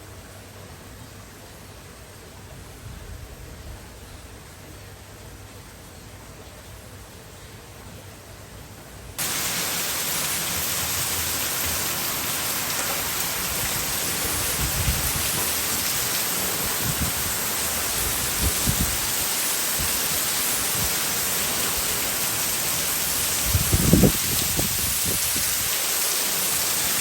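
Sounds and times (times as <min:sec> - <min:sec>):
heavy rain falling: 0:09.2 - 0:27.0.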